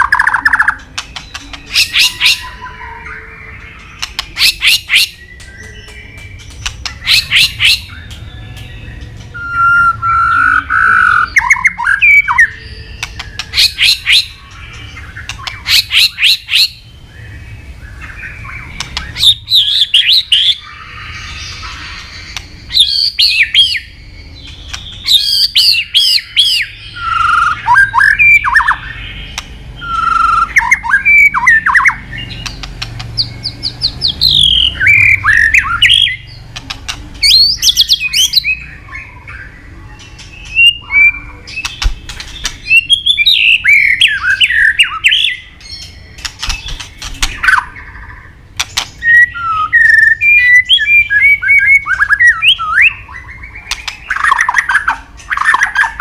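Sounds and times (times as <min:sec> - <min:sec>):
bird singing whistled phrases: 0:00.0 - 0:21.8, 0:25.0 - 0:29.0, 0:29.8 - 0:32.5, 0:49.0 - 0:56.0.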